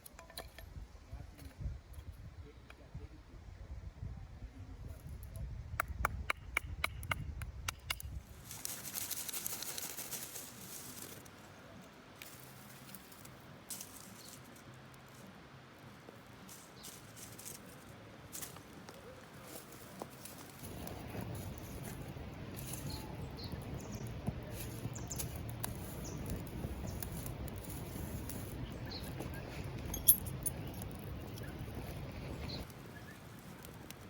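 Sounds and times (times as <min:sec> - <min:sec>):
fire crackling: 0:18.4 - 0:34.0.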